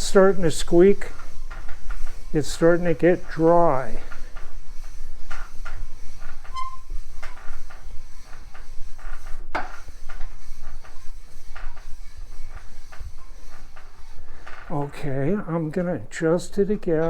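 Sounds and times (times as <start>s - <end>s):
lap rasping on bearing race: 0.0s - 17.0s
short squeak: 6.4s - 7.0s.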